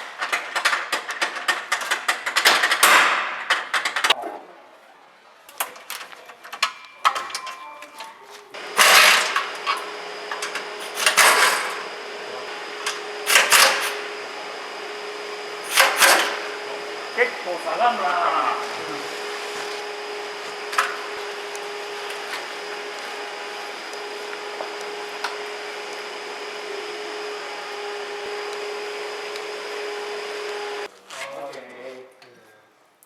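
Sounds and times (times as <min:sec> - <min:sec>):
rapid clicking and rattling: 0:00.0 - 0:04.2
loud hissing bursts: 0:08.6 - 0:22.0
machine hum with high whine: 0:08.6 - 0:30.9.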